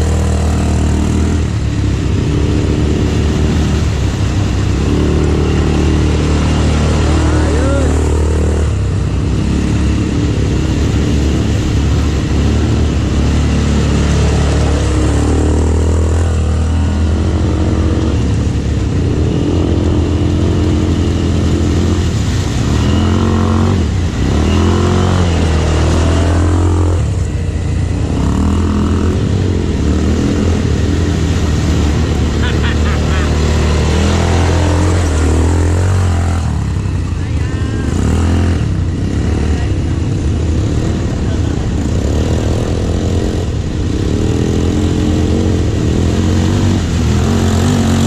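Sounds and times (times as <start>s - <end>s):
atv engine revving: 0.0s - 48.0s.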